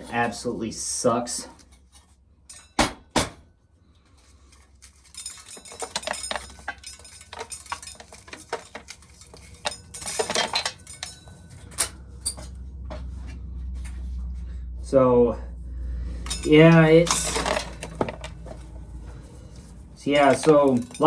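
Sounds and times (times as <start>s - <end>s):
corn kernels rattling against metal: 4.7s - 11.4s, 16.2s - 21.0s.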